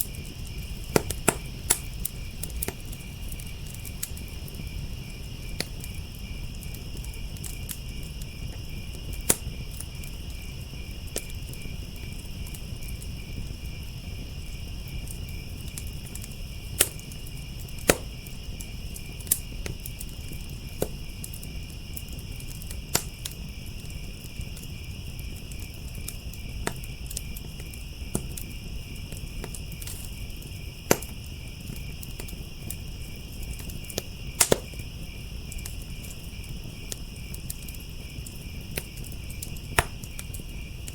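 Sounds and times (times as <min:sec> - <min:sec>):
crickets chirping: 0:00.0 - 0:40.9
wood fire crackling and popping: 0:00.0 - 0:40.9.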